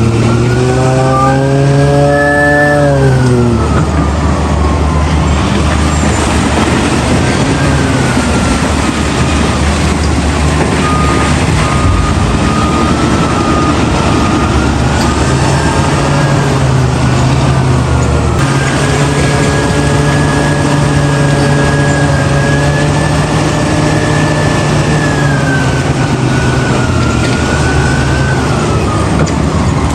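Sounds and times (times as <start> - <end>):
reversing alarm beeping: 0.0 - 4.9, 5.9 - 17.2
heavy diesel engine under load: 0.0 - 29.9.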